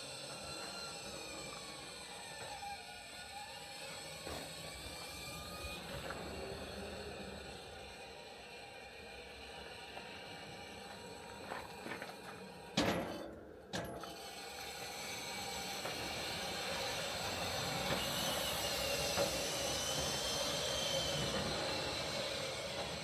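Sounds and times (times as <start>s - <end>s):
engine running: 14.4s - 23.0s.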